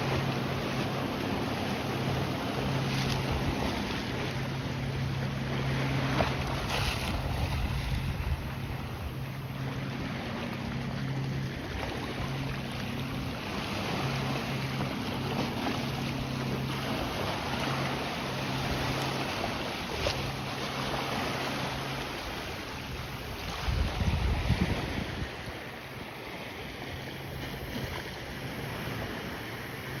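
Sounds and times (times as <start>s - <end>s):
wind buffeting microphone: 0.0s - 10.0s, 22.9s - 25.7s
lake waves on shore: 0.0s - 30.0s
low engine hum: 0.0s - 30.0s.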